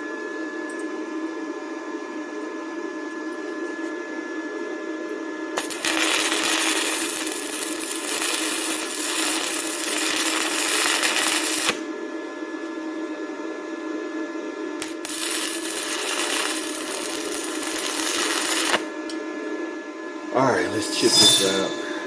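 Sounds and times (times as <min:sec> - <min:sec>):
welding arc crackling and hissing: 0:05.6 - 0:11.8, 0:14.8 - 0:18.9
steady hum: 0:19.4 - 0:22.0.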